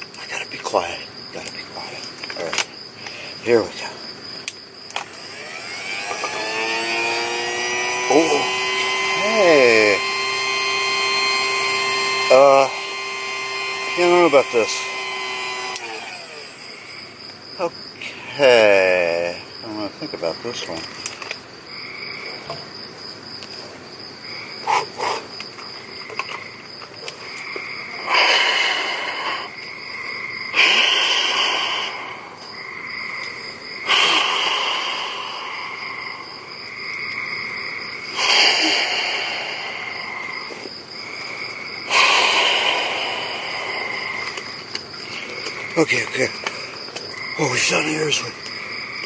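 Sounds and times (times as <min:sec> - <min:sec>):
crickets chirring: 0:00.0 - 0:49.0
breaths blowing into air mattress: 0:28.0 - 0:29.6, 0:30.6 - 0:32.4, 0:33.9 - 0:35.8, 0:38.1 - 0:40.2, 0:41.9 - 0:44.3.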